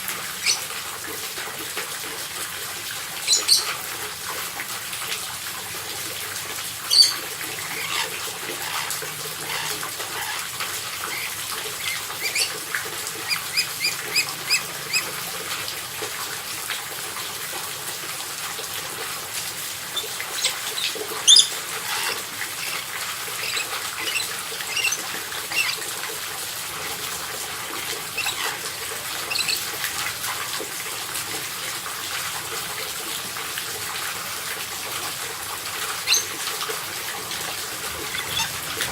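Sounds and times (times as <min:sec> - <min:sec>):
parrots squawking: 0:00.4 - 0:00.7, 0:03.2 - 0:03.8, 0:06.9 - 0:15.2, 0:19.9 - 0:25.9, 0:28.1 - 0:29.7, 0:36.0 - 0:36.4, 0:37.9 - 0:38.9.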